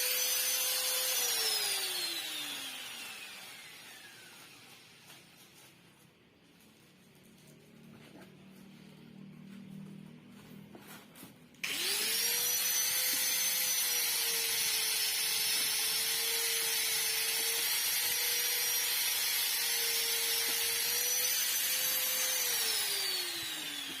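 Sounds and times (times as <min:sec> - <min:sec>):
power tool motor whining: 0:00.0 - 0:05.4, 0:11.6 - 0:24.0.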